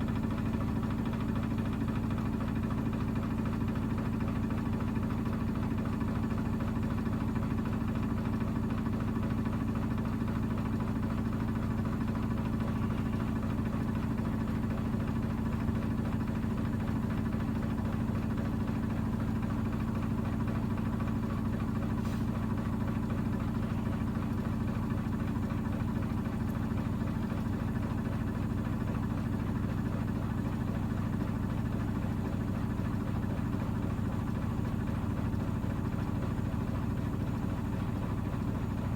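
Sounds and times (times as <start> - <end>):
washing machine motor hum: 10.0 - 38.9.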